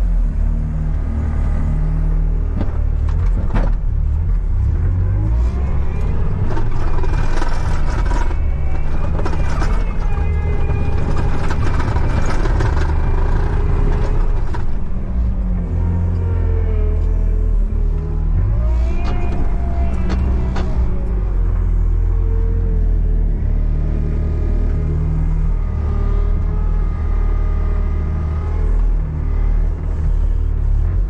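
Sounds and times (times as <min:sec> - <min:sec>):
vehicle engine running: 0:00.0 - 0:31.0
sharp clicks and knocks: 0:06.0 - 0:15.2.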